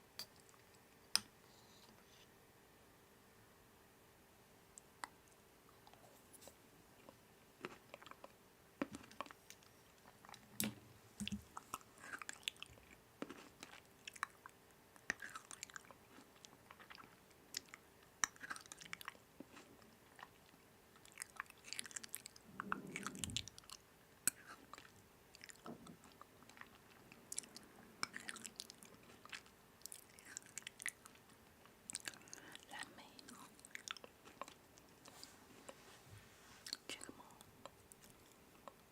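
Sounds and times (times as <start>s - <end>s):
person chewing crunchy food: 11.3s - 14.5s, 15.1s - 31.3s.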